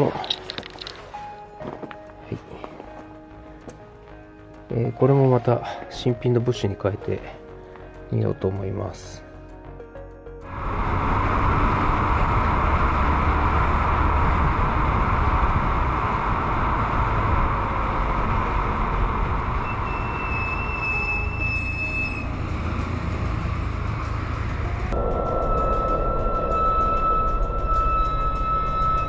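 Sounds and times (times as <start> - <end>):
road and tyre noise: 0.0 - 5.5, 10.4 - 29.0
low engine rumble: 10.4 - 29.0
thin steady whine: 10.4 - 29.0.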